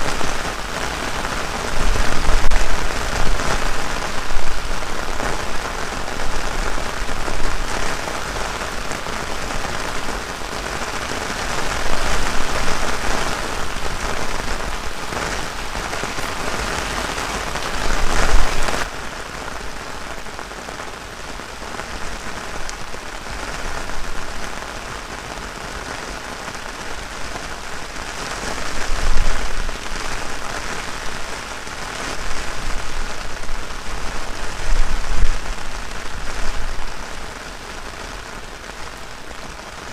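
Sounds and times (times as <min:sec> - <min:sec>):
wind buffeting microphone: 0:00.0 - 0:18.9, 0:28.4 - 0:37.4
heavy rain falling: 0:00.0 - 0:39.9.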